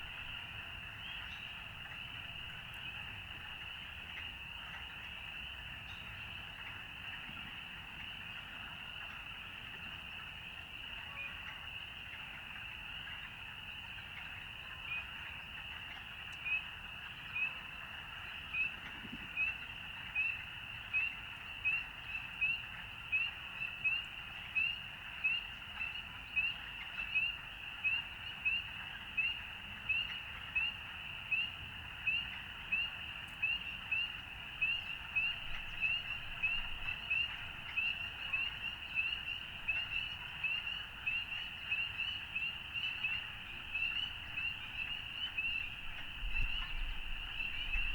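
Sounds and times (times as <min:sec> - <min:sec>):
chorus of frogs calling: 0:10.7 - 0:47.9.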